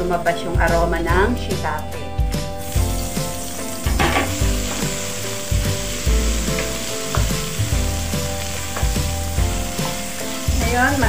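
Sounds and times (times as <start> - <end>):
food sizzling in oil: 2.4 - 11.0.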